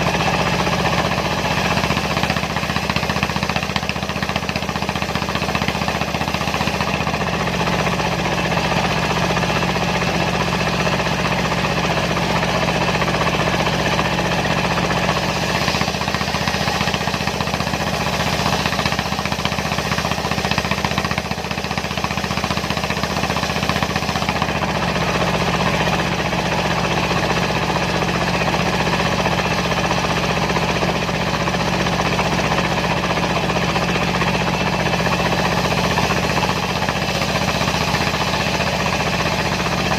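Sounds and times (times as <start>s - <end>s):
circular saw: 0.0s - 39.9s
diesel engine running: 0.0s - 39.9s.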